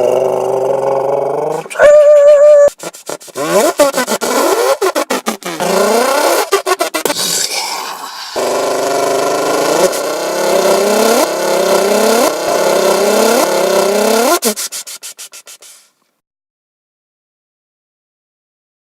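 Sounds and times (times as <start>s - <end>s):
engine revving: 0.0s - 2.0s, 3.1s - 14.7s.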